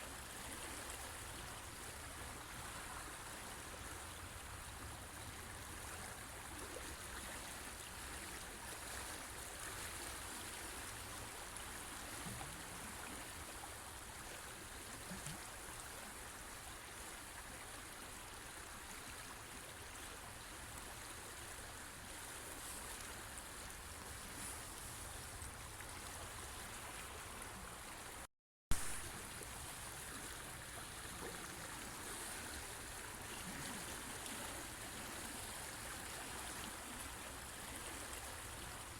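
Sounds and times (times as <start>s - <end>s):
stream water rushing: 0.1s - 38.9s.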